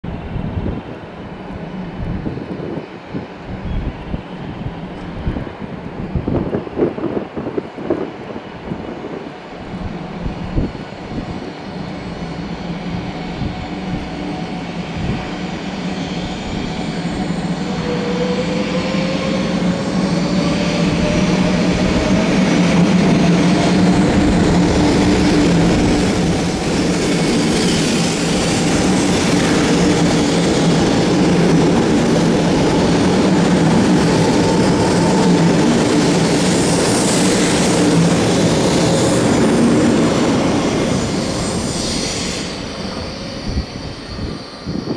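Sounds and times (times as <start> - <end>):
train hum: 0.0 - 44.9
wheels rumbling on rail: 0.1 - 44.9.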